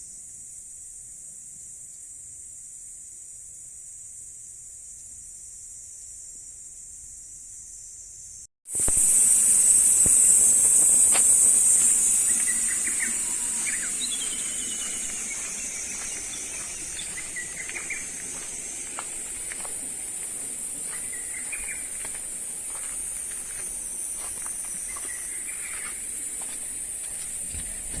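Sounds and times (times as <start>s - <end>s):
high insect chorus: 0.0s - 28.0s
falling bird whistle: 8.8s - 18.4s.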